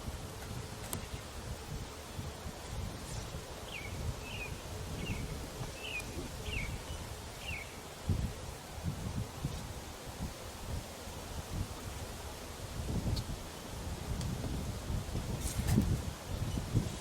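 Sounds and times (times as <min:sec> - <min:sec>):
low rumbling wind: 0:00.0 - 0:17.0
bees humming: 0:00.3 - 0:15.1
songbird chirping: 0:03.6 - 0:07.8.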